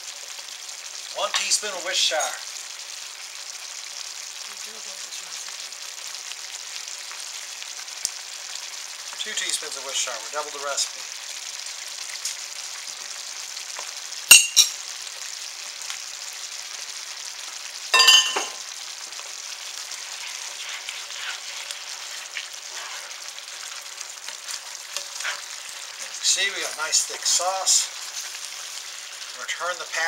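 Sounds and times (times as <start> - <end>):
gravy sizzling and bubbling: 0.0 - 30.0
spatula stirring sauce: 18.8 - 29.4.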